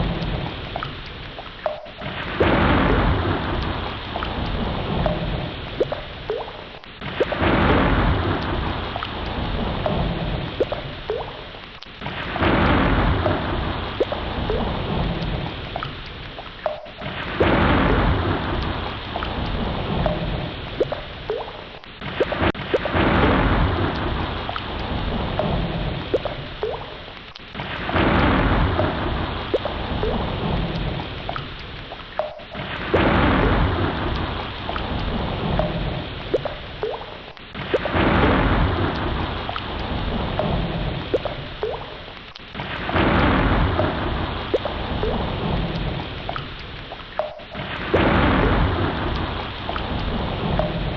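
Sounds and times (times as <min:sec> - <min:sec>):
rumbling wash of ocean water: 0:00.0 - 0:50.9
deep rumble: 0:02.4 - 0:06.4.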